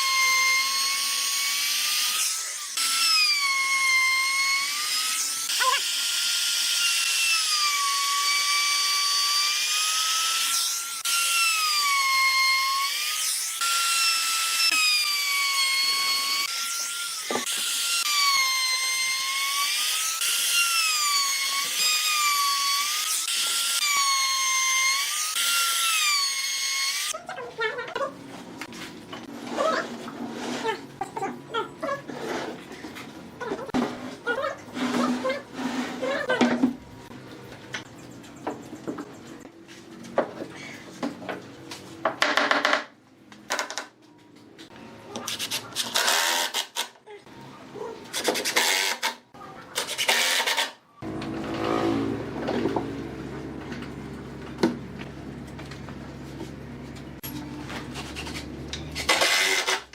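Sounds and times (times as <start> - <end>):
power tool whining on wood: 0.0 - 27.2, 49.9 - 54.4
hand tool scraping wood: 33.8 - 36.3.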